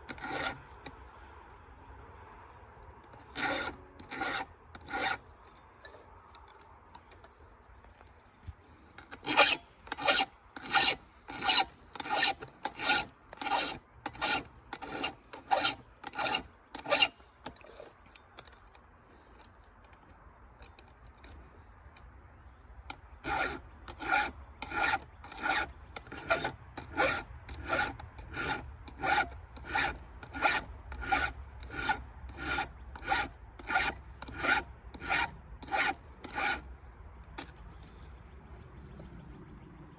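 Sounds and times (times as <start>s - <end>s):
file rasping on chain: 0.0s - 0.6s, 3.1s - 6.0s, 9.0s - 18.0s, 23.2s - 36.7s.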